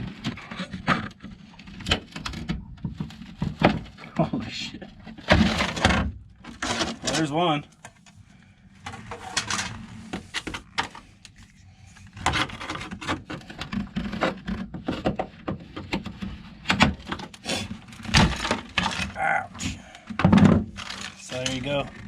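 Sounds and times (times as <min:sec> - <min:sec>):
brittle mat cracking and snapping: 0:16.7 - 0:19.2.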